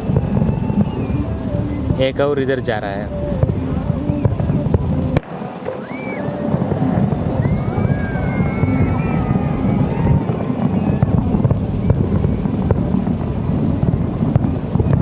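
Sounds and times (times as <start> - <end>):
thin wavering whistle: 0.0 - 2.2, 3.1 - 4.7, 5.4 - 12.9
distant fireworks crackling: 0.0 - 15.0
wind buffeting microphone: 0.0 - 15.0.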